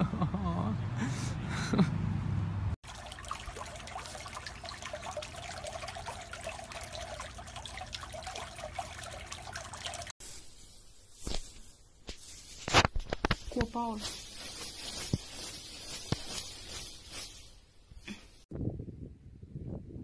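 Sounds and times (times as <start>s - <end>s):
pool water trickling and splashing: 2.8s - 10.2s.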